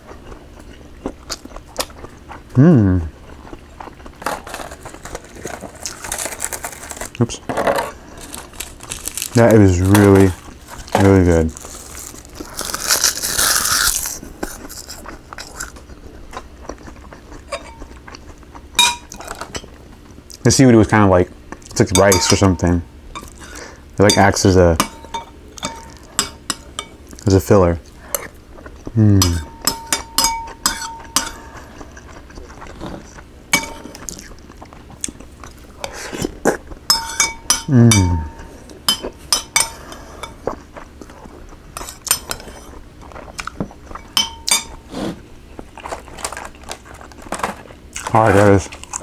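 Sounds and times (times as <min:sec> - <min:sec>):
chewing with wet clicks: 0:00.0 - 0:02.6, 0:14.4 - 0:20.4, 0:21.5 - 0:22.4, 0:30.5 - 0:33.3, 0:33.9 - 0:35.7, 0:38.7 - 0:44.2, 0:48.8 - 0:49.0
utensils clinking against a dish: 0:04.2 - 0:15.8, 0:17.4 - 0:18.2, 0:18.8 - 0:19.8, 0:21.7 - 0:28.4, 0:29.2 - 0:32.7, 0:33.5 - 0:34.3, 0:35.8 - 0:40.6, 0:41.7 - 0:45.1
crunchy bite: 0:11.5 - 0:15.8.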